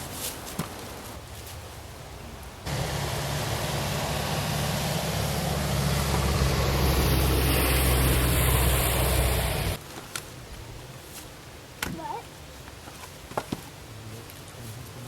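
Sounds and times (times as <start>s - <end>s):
vehicle engine humming: 2.6s - 9.8s.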